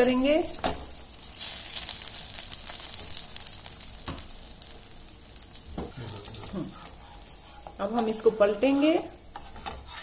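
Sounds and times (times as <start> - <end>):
batter sizzling on a griddle: 0.0 - 10.0
spatula strokes: 9.3 - 10.0.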